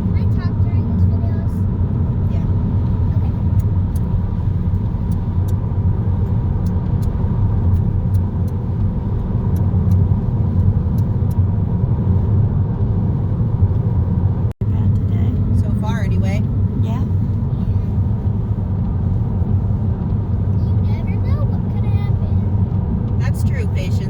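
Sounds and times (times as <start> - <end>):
car road noise rumble: 0.0 - 24.0
light ticks: 3.4 - 11.5.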